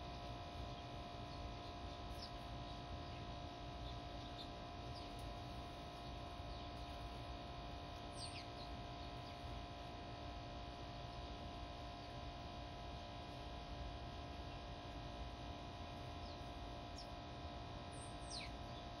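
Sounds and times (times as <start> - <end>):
songbirds chirping: 0.0 - 9.8, 14.3 - 15.1, 15.7 - 19.0
steady low hum: 0.0 - 19.0.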